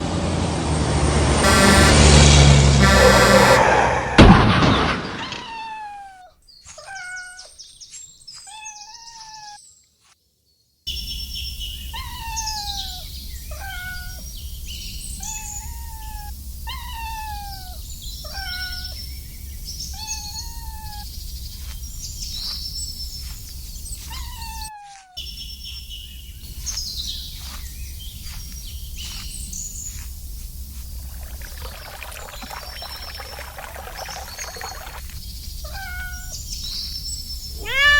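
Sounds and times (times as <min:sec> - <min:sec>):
high chirps: 0:01.4 - 0:04.2
kitten meowing: 0:35.6 - 0:36.4, 0:37.6 - 0:37.9.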